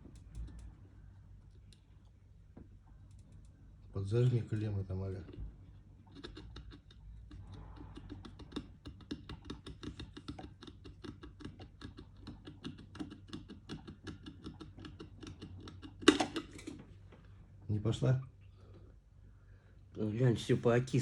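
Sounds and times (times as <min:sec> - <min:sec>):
hand tools clicking and tapping: 0:08.0 - 0:16.6.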